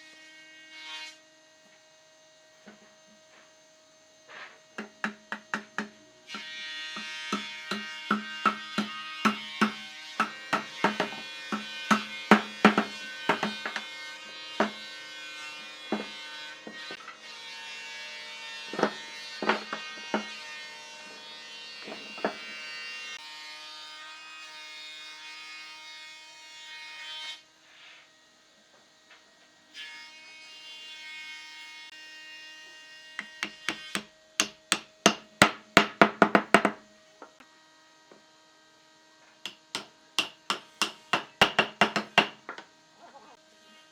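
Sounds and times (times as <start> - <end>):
steady buzzing hum: 1.2 - 23.6
sharp knocks on wood: 33.2 - 36.8, 39.5 - 42.6.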